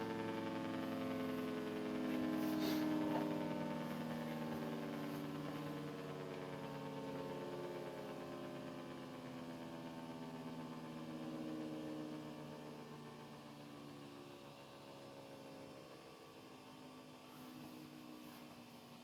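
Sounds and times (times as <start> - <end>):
siren winding down: 0.0 - 8.8.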